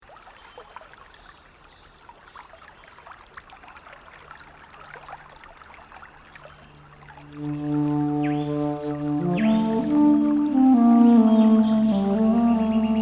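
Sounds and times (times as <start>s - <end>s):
trickling babbling water: 0.0s - 13.0s.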